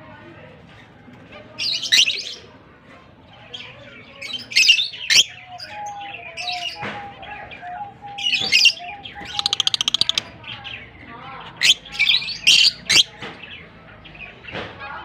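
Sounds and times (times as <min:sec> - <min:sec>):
lovebirds chirping shrilly: 0:08.2 - 0:10.6, 0:11.5 - 0:13.2.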